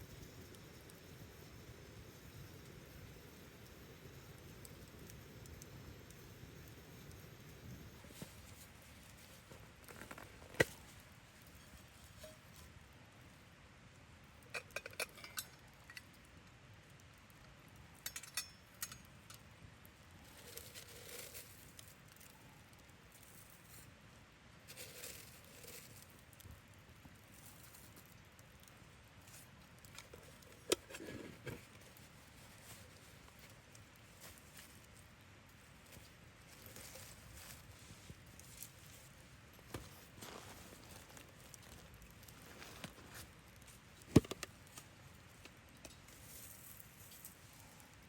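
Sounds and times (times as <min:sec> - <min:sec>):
camp gear clinking: 0:18.1 - 0:19.1.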